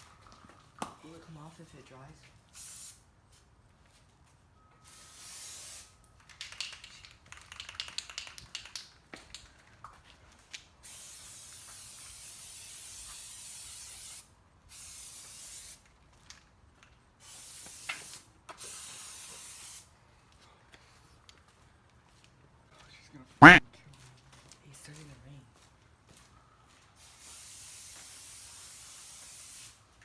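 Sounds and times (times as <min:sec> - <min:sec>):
spray paint can hissing: 0:02.6 - 0:03.0, 0:04.9 - 0:05.9, 0:10.9 - 0:15.8, 0:17.2 - 0:19.9, 0:27.1 - 0:29.8
quick clicks and rattles: 0:06.2 - 0:08.9.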